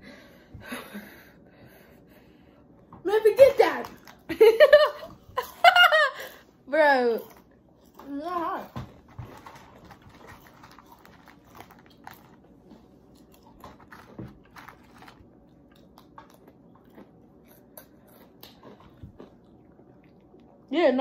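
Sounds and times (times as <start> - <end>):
people crunching chips: 7.0 - 20.6.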